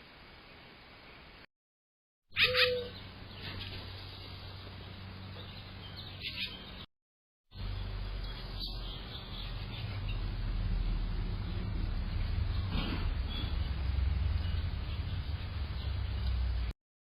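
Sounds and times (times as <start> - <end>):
short bird chirps: 2.3 - 3.6.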